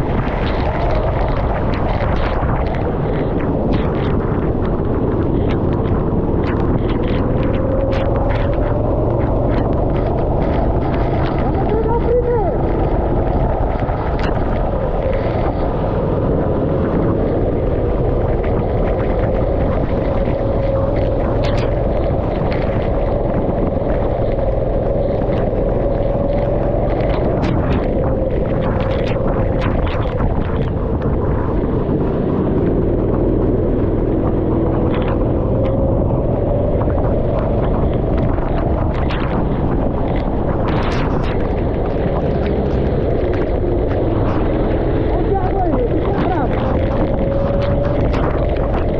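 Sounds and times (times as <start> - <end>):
rush of wind and spray: 0.0 - 48.9
go-kart engine running: 4.4 - 29.3.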